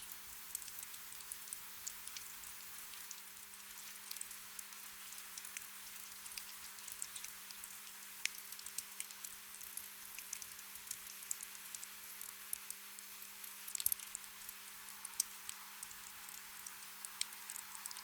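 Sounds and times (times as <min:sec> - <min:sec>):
gentle rain hiss: 0:00.0 - 0:18.0.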